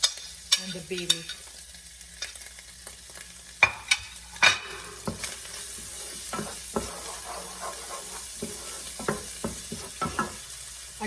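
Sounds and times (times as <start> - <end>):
food sizzling in oil: 0.0 - 11.0
utensil scraping a pan: 3.7 - 10.6.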